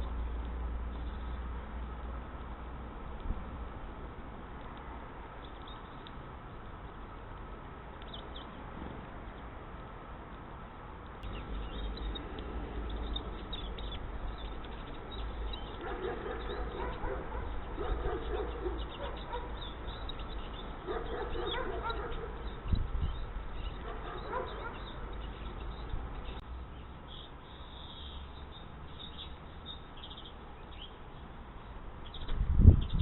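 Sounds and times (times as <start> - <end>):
animal calls: 15.6 - 20.2, 20.8 - 22.6, 23.6 - 25.1.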